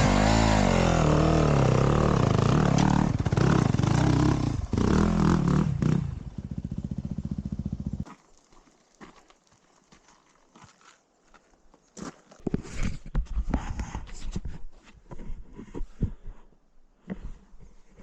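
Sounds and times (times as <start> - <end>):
dirt bike engine revving: 0.0 - 8.0.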